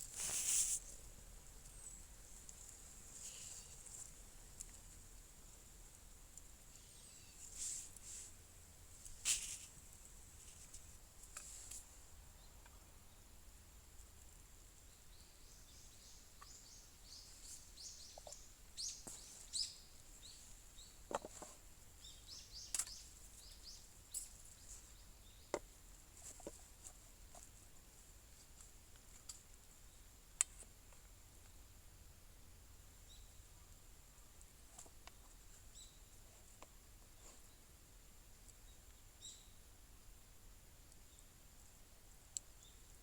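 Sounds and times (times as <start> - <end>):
small birds chirping: 0.0 - 8.3, 14.7 - 27.8, 32.9 - 37.8, 38.4 - 39.6, 42.4 - 43.0.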